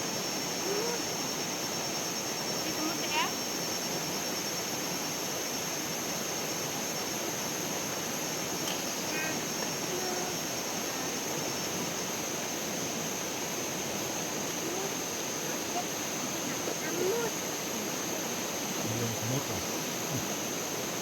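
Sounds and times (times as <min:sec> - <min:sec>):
constant high-pitched buzz: 0:00.0 - 0:21.0
steady outdoor rushing noise: 0:18.8 - 0:21.0.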